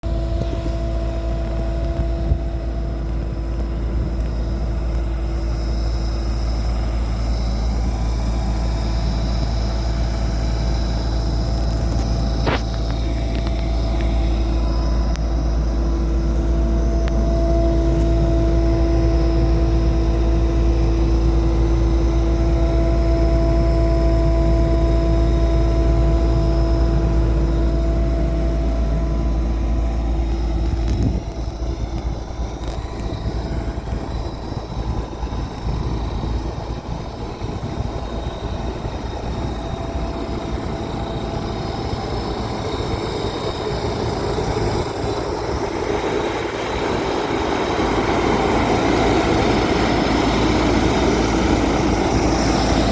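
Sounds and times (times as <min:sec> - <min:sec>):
diesel engine humming: 0:00.0 - 0:52.9
rough uneven machine sound: 0:11.2 - 0:16.6.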